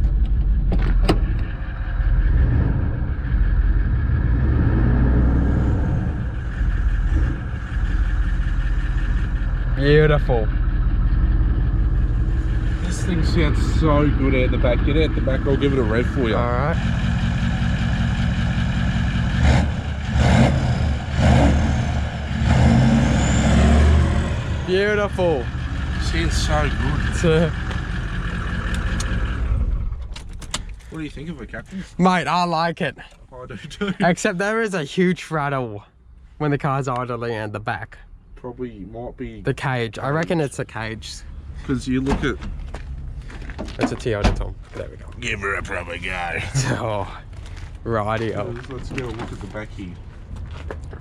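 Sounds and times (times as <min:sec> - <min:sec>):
diesel engine revving: 0:00.0 - 0:32.4, 0:45.2 - 0:48.6.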